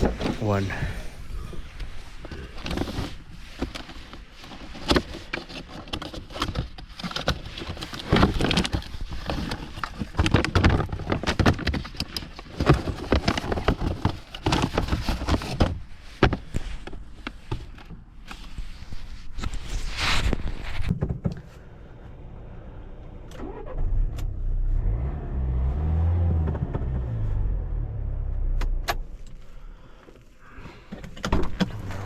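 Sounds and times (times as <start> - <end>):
handling clicks knocks and rustling: 2.2 - 18.7, 30.0 - 32.0.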